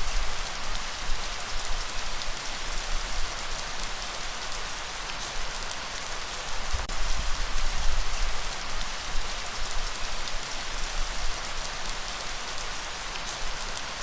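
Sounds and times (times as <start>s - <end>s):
steady rain patter: 0.0s - 14.0s.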